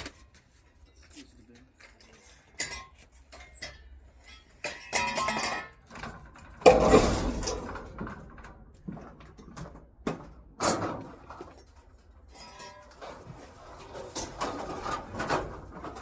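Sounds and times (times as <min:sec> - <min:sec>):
scrap metal clanking: 0:01.8 - 0:08.4, 0:10.6 - 0:16.0.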